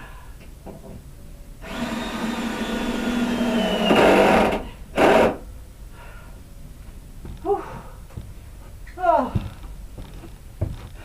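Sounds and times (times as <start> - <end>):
cordless drill drilling wood: 1.6 - 5.4.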